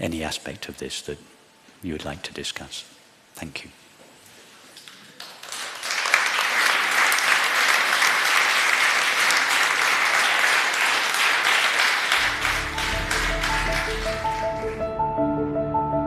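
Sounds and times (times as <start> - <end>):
audience applauding: 5.2 - 14.9.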